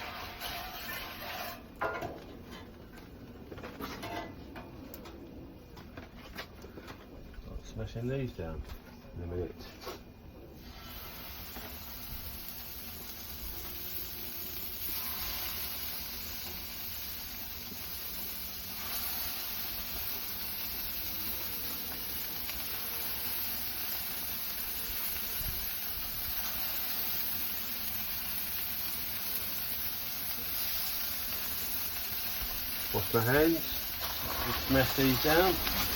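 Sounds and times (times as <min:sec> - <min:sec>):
meat sizzling on a griddle: 0:00.0 - 0:02.1, 0:10.6 - 0:35.9.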